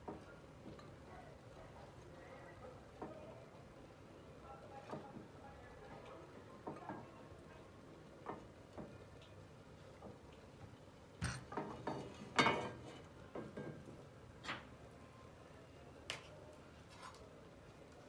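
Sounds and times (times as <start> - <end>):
utensils and cookware knocking: 11.2 - 11.7.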